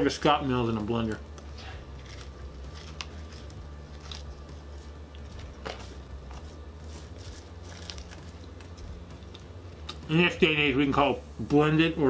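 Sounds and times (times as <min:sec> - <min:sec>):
steady low hum: 0:00.0 - 0:12.0
man chewing fries: 0:01.2 - 0:10.1.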